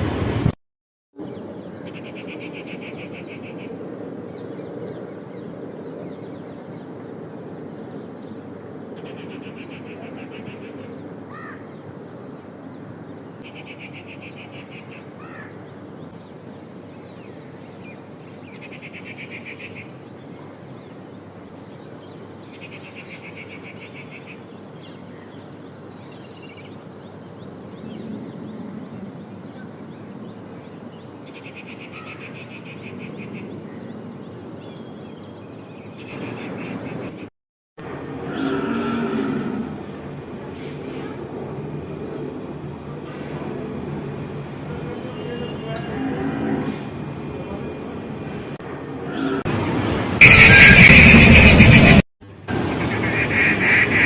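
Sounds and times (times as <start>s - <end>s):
rasping pulsed bird call: 50.2s - 52.0s
short rising bird chirps: 50.2s - 52.0s.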